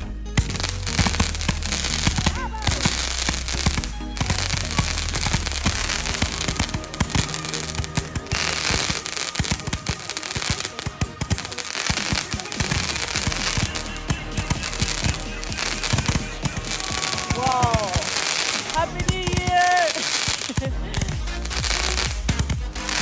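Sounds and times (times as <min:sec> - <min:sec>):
background music: 0:00.0 - 0:23.0
fireworks firing shots: 0:00.0 - 0:23.0.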